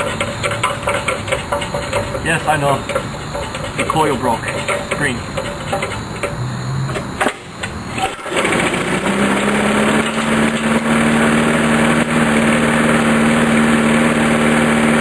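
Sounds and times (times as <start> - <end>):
lawn mower engine starting: 0.0 - 15.0.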